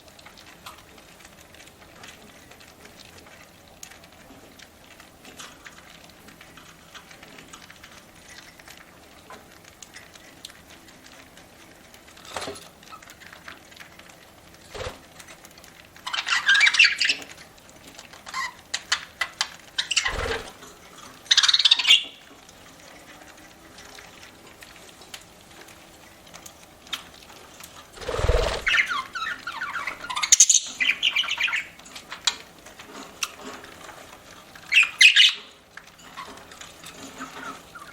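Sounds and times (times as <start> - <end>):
budgerigars chattering squawks: 34.7 - 35.4.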